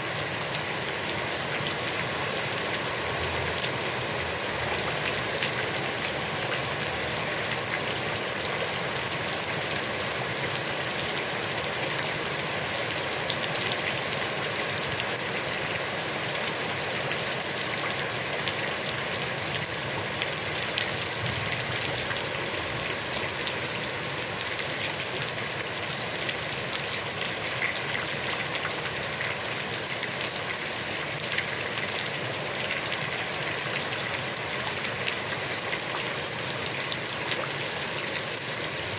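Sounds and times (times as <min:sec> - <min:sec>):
heavy rain falling on pond: 0:00.0 - 0:38.9.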